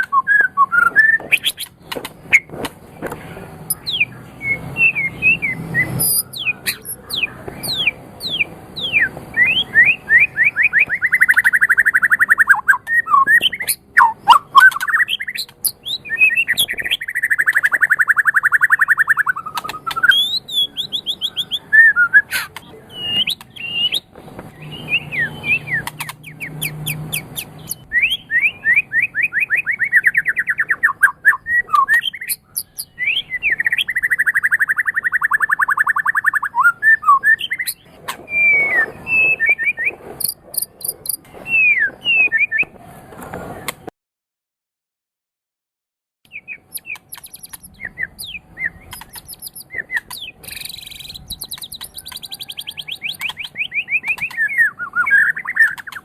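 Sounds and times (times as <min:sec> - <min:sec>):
songbird singing: 0:00.0 - 0:43.8, 0:46.3 - 0:56.0.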